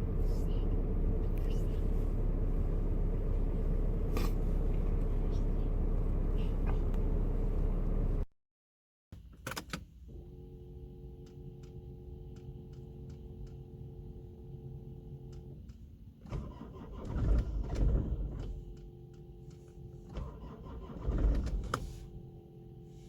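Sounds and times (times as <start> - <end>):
car engine cranking: 15.2 - 22.2.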